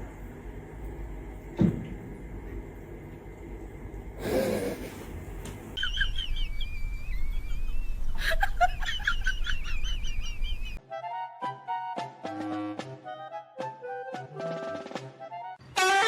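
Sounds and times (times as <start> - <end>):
bird chirping and whistling: 5.8 - 8.2.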